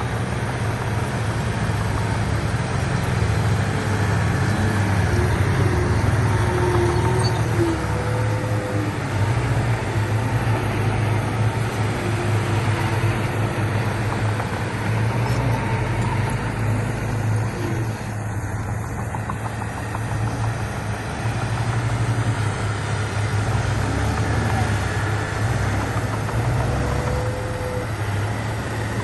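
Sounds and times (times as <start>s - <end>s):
heavy diesel machinery engine droning: 0.0s - 29.0s.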